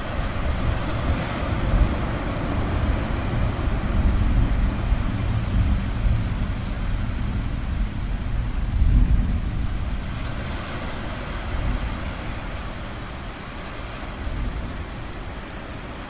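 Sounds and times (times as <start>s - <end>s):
distant thunder rumbling: 0.0s - 10.4s
ocean waves washing: 0.0s - 16.0s.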